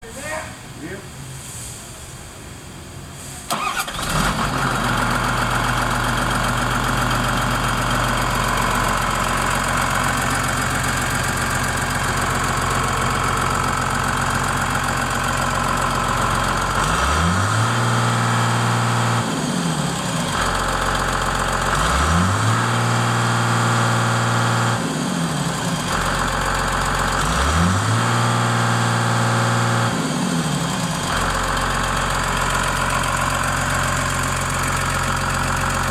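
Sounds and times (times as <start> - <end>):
diesel engine starting: 3.2 - 35.9
engine revving: 3.5 - 5.8, 15.6 - 26.1, 27.0 - 31.4
diesel engine idling: 3.5 - 24.4, 25.0 - 27.4, 28.9 - 35.9.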